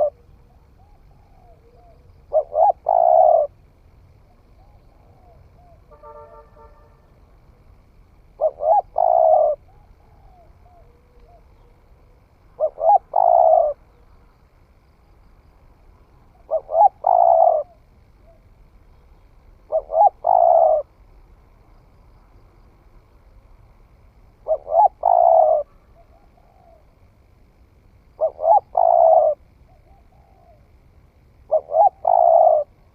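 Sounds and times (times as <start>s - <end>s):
dove cooing: 0.0s - 5.9s, 8.2s - 14.0s, 16.2s - 18.5s, 19.6s - 21.0s, 24.4s - 27.0s, 28.1s - 30.8s, 31.4s - 32.9s
faint bird calls: 0.0s - 21.2s, 24.3s - 32.9s.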